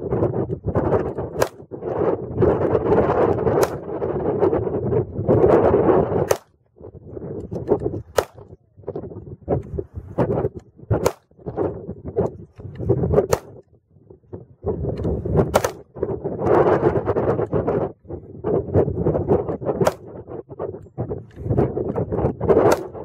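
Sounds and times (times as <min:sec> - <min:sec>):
wind buffeting microphone: 0:00.0 - 0:23.0
pistol shots: 0:01.4 - 0:01.7, 0:03.6 - 0:04.0, 0:06.2 - 0:06.6, 0:08.1 - 0:08.6, 0:11.0 - 0:11.3, 0:13.3 - 0:13.6, 0:15.5 - 0:15.8, 0:22.7 - 0:23.0.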